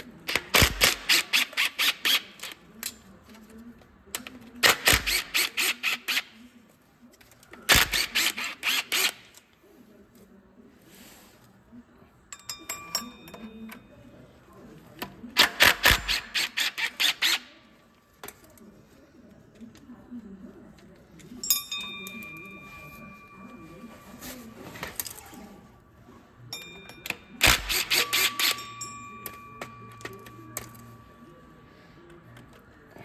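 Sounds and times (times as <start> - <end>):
ratchet wrench clicking: 0.5 - 3.0, 4.6 - 6.3, 27.4 - 30.8
metal tools clinking: 12.3 - 14.1, 21.2 - 25.6, 26.5 - 31.2.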